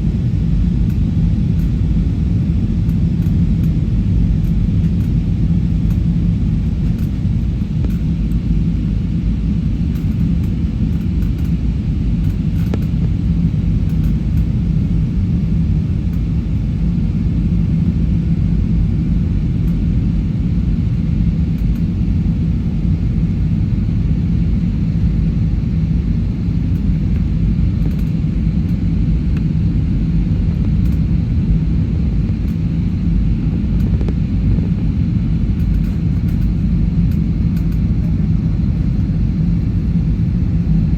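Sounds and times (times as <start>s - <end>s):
constant hum: 0.0s - 40.9s
engine and airflow rumble: 0.0s - 40.9s.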